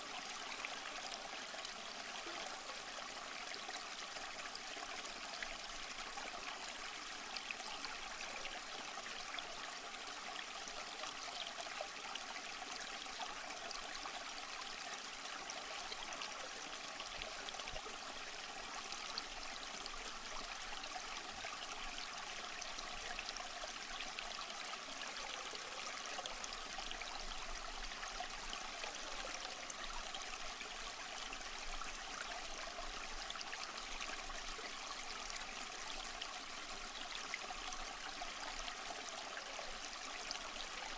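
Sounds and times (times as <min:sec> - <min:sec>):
stream babbling over rocks: 0:00.0 - 0:40.9.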